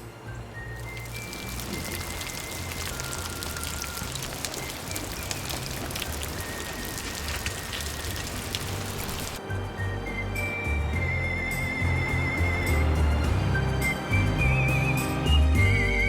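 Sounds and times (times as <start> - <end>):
raindrops ticking close by: 0.0 - 9.4
steady rainfall: 0.0 - 15.2.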